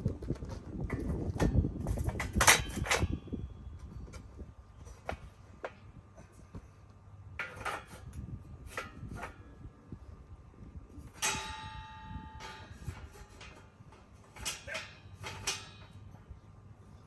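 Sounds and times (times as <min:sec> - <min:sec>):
ringing metal strike: 0:11.2 - 0:13.6
metal parts knocking and clinking: 0:11.2 - 0:16.3.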